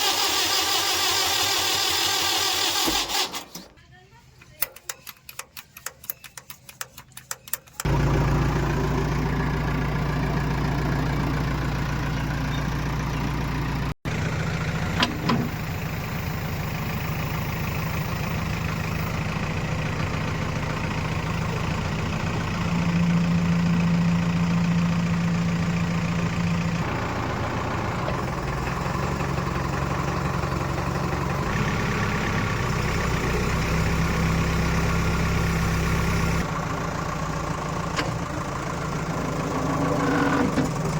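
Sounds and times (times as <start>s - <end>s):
sharp clicks: 4.4s - 7.9s
heavy diesel engine running: 7.8s - 40.9s.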